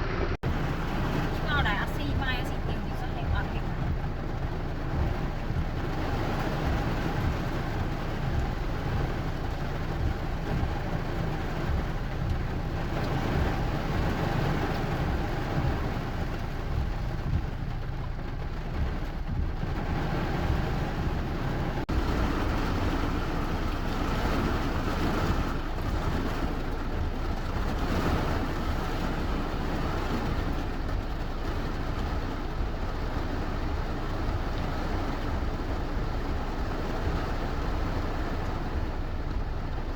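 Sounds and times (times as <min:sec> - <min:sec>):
deep rumble: 0:00.0 - 0:39.9
steady rain: 0:00.0 - 0:39.9.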